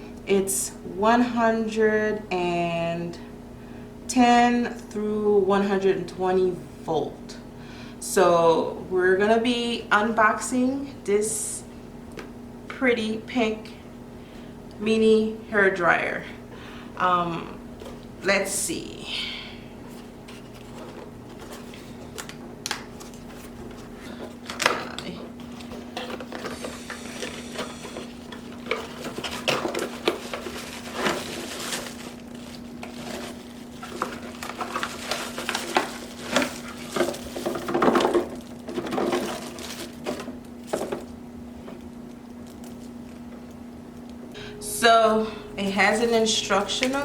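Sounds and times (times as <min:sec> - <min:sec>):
low hum: 0:41.6 - 0:47.0.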